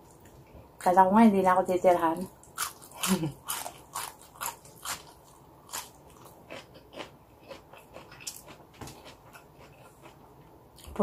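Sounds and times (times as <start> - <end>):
person chewing moist food: 2.3 - 11.0.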